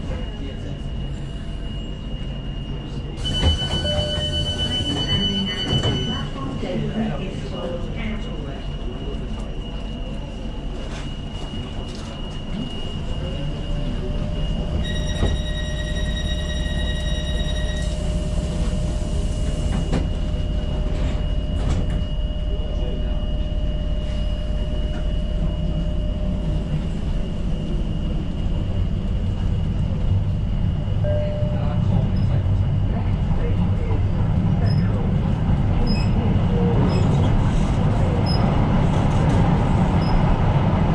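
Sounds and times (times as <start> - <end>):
train running: 0.0 - 40.9
steady high-pitched tone: 0.4 - 18.5.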